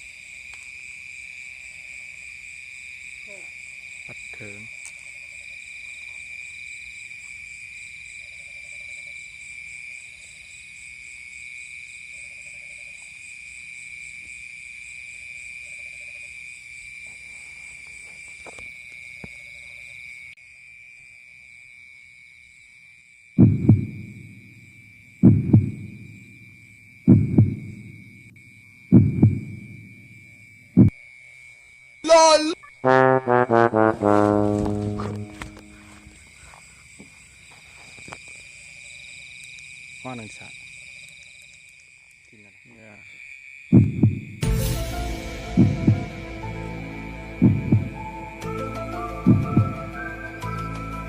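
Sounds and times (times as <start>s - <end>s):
crickets and katydids trilling: 0.0s - 33.4s, 34.8s - 51.0s
loud low double thump: 23.4s - 24.0s, 27.1s - 27.6s, 29.0s - 29.5s, 43.8s - 44.3s, 47.4s - 48.0s.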